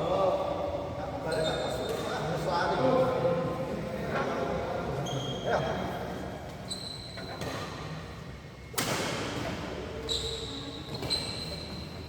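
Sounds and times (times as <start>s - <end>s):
shoes squeaking on court floor: 1.2s - 2.2s, 5.0s - 5.9s, 6.5s - 8.0s, 9.9s - 12.0s.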